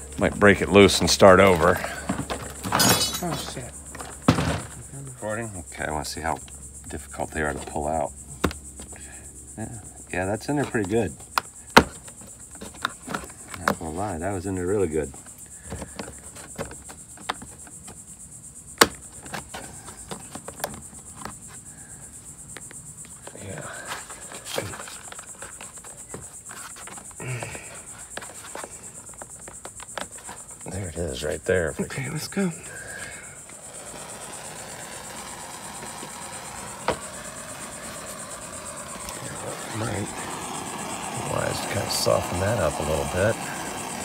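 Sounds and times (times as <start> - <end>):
crickets chirping: 0.0 - 44.0.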